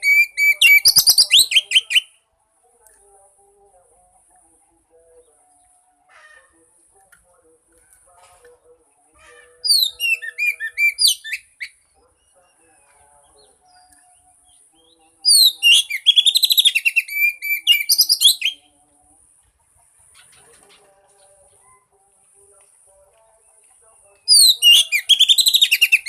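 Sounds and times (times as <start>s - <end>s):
bird singing whistled notes: 0.0s - 2.2s, 9.6s - 12.4s, 13.6s - 18.8s, 24.3s - 26.0s.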